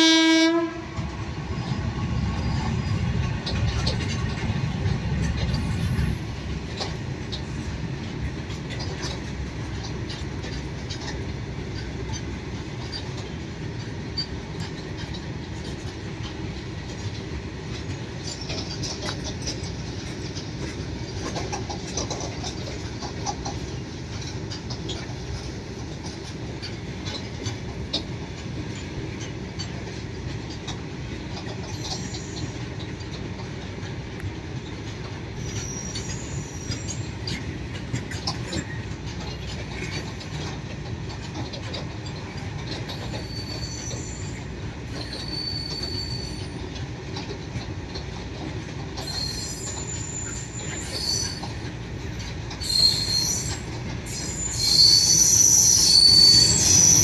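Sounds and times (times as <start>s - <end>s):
freight train wagons rumbling: 0.0s - 57.0s
high-pitched wheel squeal: 35.4s - 37.2s, 42.9s - 46.7s, 49.0s - 57.0s.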